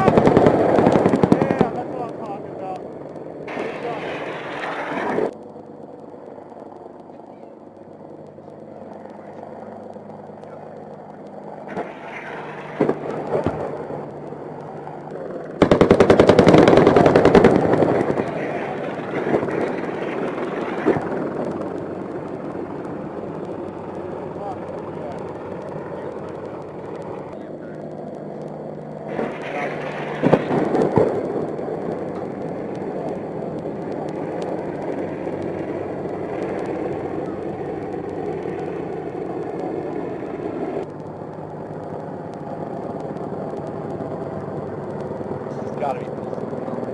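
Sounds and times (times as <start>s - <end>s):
rapid automatic gunfire: 0.0s - 2.0s, 15.6s - 21.7s, 29.1s - 31.2s
helicopter noise through intercom: 0.0s - 46.9s
steady background rush: 0.0s - 46.9s.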